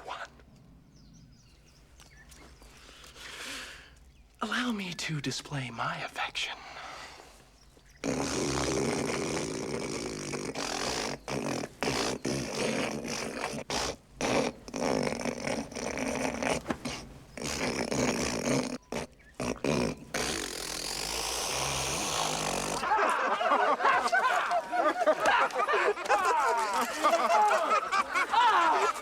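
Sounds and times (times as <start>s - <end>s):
man hawking up phlegm: 8.0s - 23.2s, 23.9s - 29.0s.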